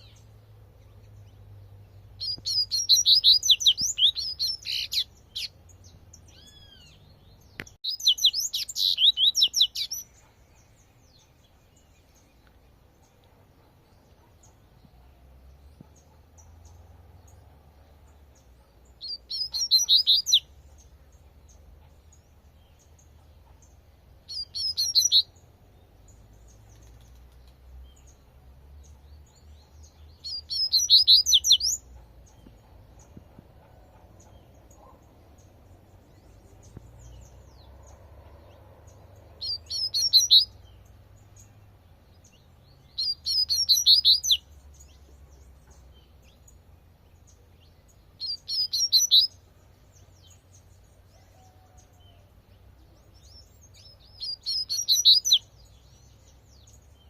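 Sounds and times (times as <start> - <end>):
bird singing high sweet notes: 0.0 - 12.4, 18.8 - 22.9, 24.2 - 25.4, 28.8 - 33.1, 36.1 - 46.4, 47.2 - 49.4, 53.0 - 57.0.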